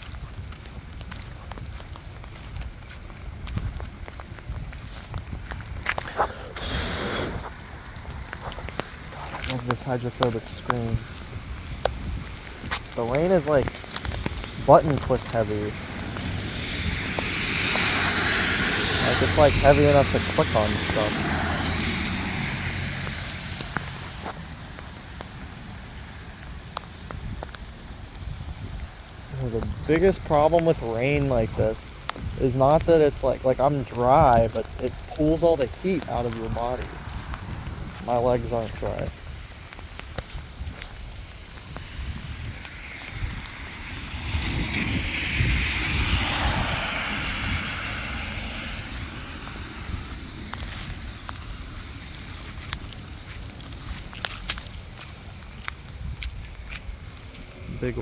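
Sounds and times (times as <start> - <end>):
heavy rain falling: 0.0 - 58.0
wind buffeting microphone: 0.0 - 58.0
raindrops ticking on phone: 7.6 - 19.6.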